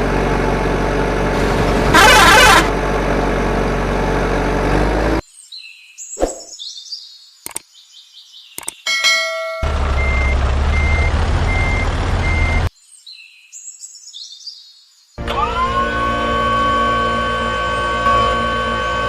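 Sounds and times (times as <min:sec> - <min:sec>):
truck engine running: 0:00.0 - 0:05.2, 0:09.6 - 0:12.7, 0:15.2 - 0:19.0
clicks: 0:07.4 - 0:07.7, 0:08.6 - 0:08.8
reversing beeper: 0:09.6 - 0:12.7.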